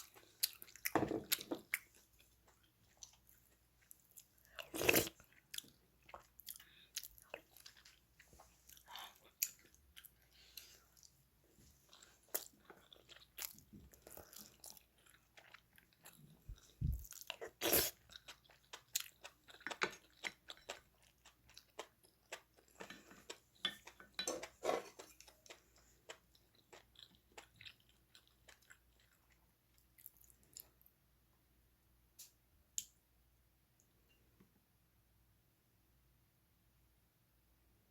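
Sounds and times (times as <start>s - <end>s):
person chewing: 0.0s - 11.2s, 11.8s - 30.9s.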